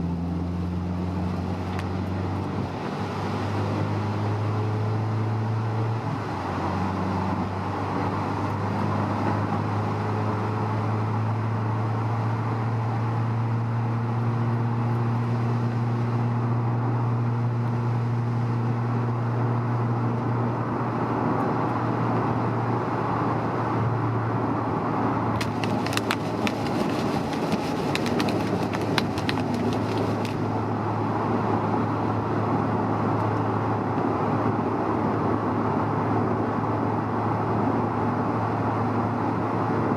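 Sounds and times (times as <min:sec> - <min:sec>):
car engine and road drone: 0:00.0 - 0:39.9.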